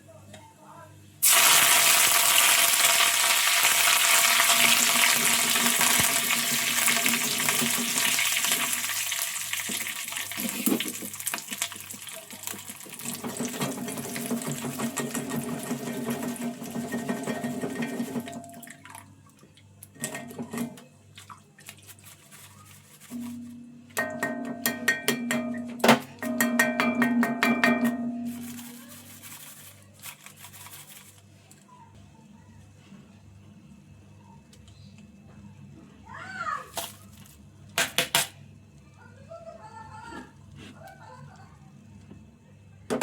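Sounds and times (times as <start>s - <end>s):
food sizzling in hot oil: 1.2s - 18.4s.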